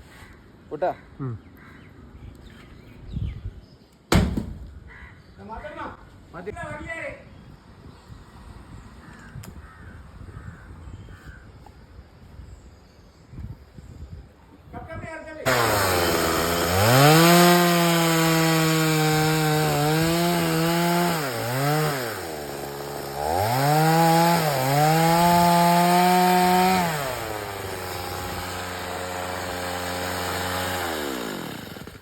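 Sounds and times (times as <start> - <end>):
chainsaw cutting wood: 15.4 - 32.0.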